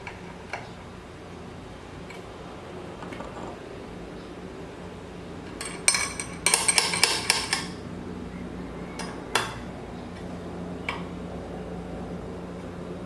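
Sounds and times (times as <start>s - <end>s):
steady low hum: 0.0s - 13.0s
metal tools clinking: 5.6s - 7.8s.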